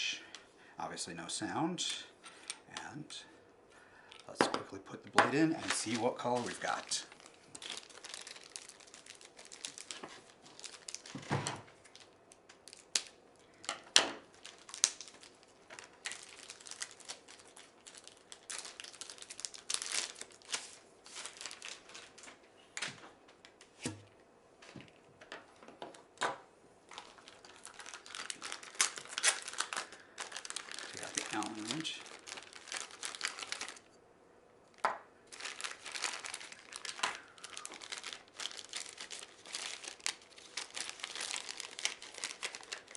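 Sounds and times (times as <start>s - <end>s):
plastic packaging crinkling: 5.0s - 22.9s, 26.8s - 33.9s, 34.7s - 42.9s.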